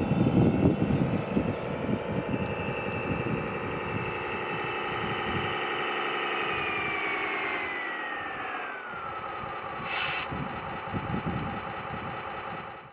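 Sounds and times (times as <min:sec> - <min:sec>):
model vehicle engine drone and whine: 0:00.0 - 0:12.9
short hiss: 0:09.8 - 0:10.3.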